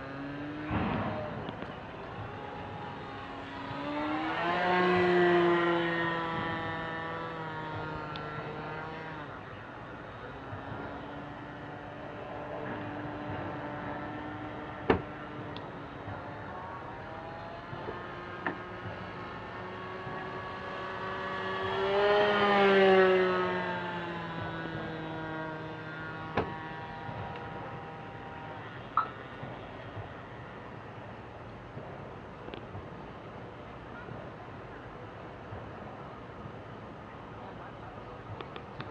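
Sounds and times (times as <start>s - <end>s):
model aeroplane engine buzzing: 1.5s - 29.7s.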